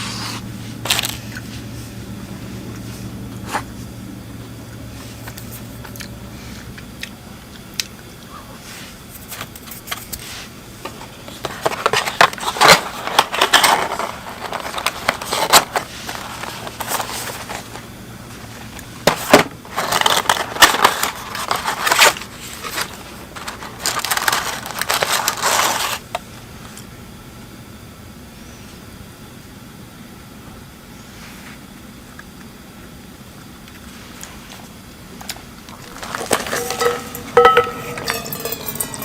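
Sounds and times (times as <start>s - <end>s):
crunching handling noise: 35.6s - 39.0s.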